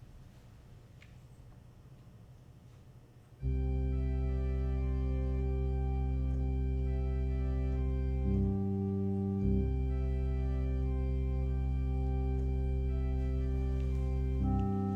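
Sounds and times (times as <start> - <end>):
organ chords: 3.4 - 14.9.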